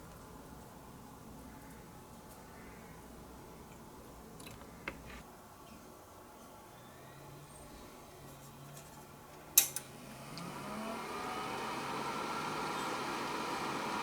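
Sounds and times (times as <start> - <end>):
computer fan and drive whirring: 9.0 - 14.0.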